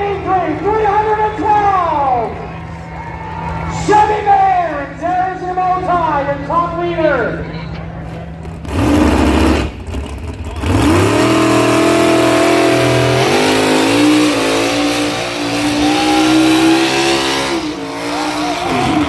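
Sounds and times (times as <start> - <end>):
engine at full throttle: 8.4 - 19.0.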